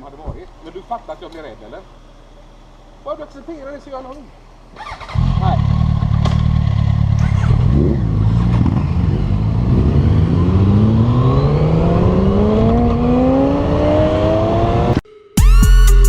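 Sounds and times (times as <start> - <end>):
motorcycle engine accelerating: 4.7 - 15.0.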